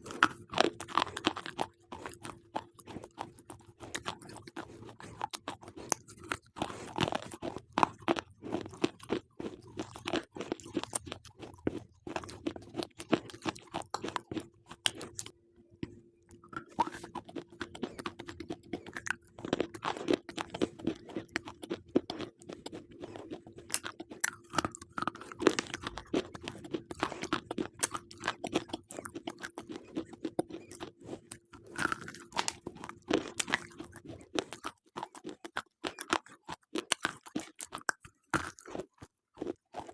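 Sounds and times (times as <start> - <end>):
slate pencils crunching: 16.6 - 39.9.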